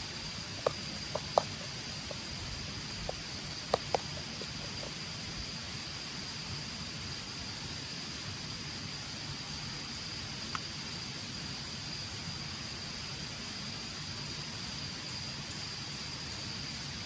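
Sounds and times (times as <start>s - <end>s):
insects trilling: 0.0s - 7.7s
outdoor hiss: 0.0s - 17.0s.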